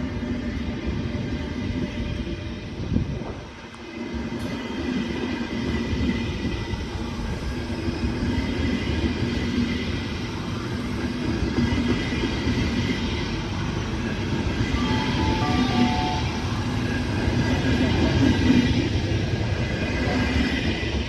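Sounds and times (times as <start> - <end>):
train wheels rumbling on rail: 0.0 - 21.0
high whine: 14.7 - 17.2.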